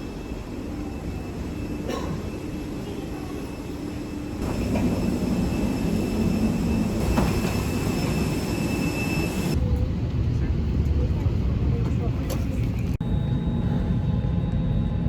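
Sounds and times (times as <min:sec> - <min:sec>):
faint high whine: 0:00.0 - 0:09.6.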